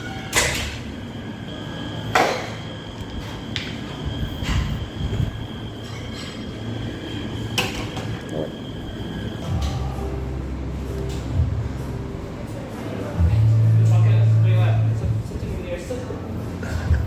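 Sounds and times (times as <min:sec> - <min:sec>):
faint high whine: 0:00.0 - 0:11.0
steady low hum: 0:00.0 - 0:17.0.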